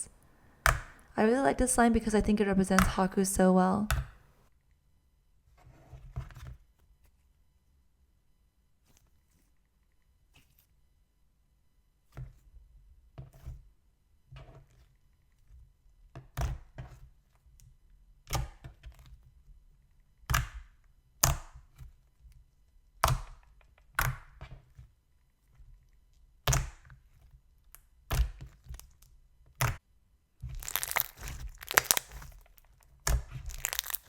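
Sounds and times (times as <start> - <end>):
slime clicking pops: 30.6 - 32.2.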